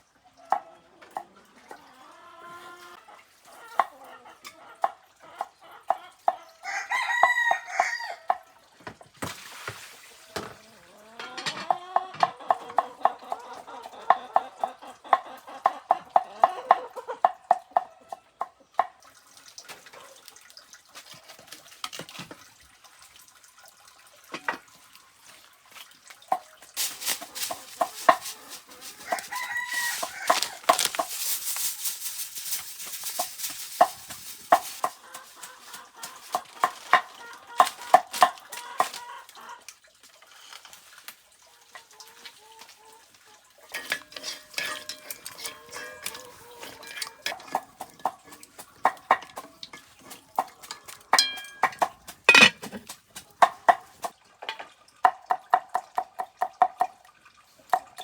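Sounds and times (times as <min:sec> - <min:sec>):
chickens clucking: 0:00.0 - 0:08.4, 0:10.2 - 0:19.0, 0:26.3 - 0:39.8, 0:41.5 - 0:54.2
rooster crowing: 0:06.6 - 0:08.3, 0:28.9 - 0:30.9.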